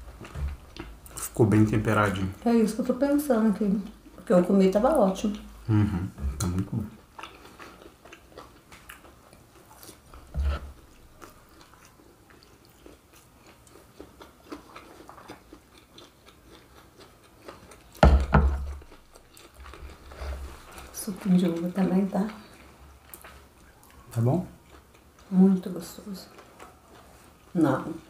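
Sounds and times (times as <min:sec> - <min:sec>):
chewing pastry: 0:00.0 - 0:28.0
thumps: 0:18.0 - 0:18.8.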